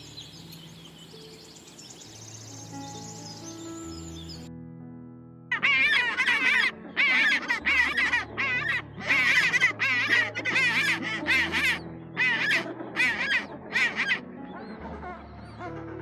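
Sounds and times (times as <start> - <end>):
soft background music: 0.0 - 16.0
penguins braying: 5.5 - 16.0.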